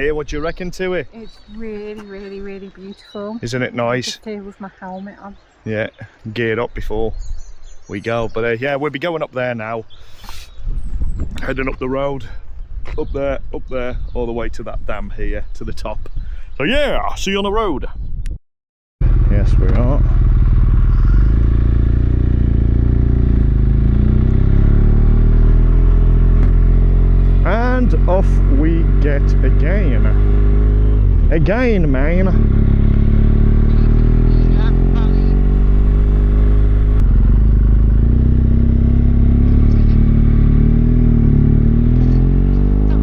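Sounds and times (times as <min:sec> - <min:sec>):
motorcycle engine riding off: 0:19.0 - 0:43.0.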